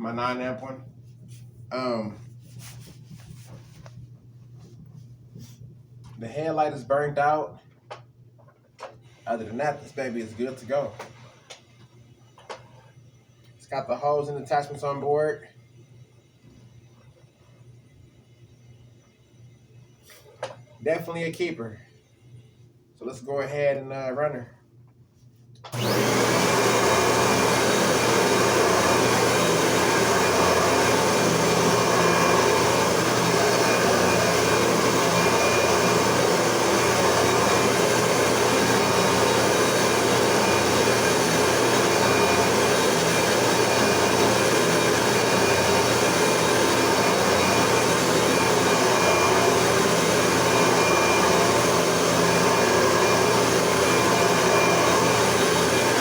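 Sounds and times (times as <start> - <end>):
vacuum cleaner running: 25.7 - 56.0.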